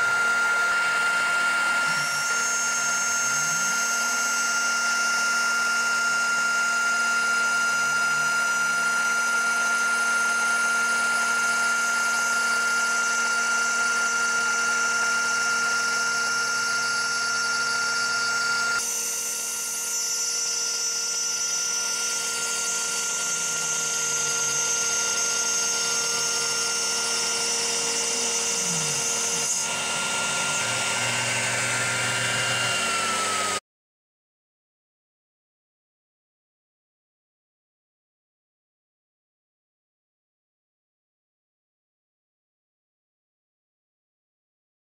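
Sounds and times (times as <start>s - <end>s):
router spindle high whine: 0.0s - 33.6s
drive motors gliding in pitch: 20.6s - 33.6s.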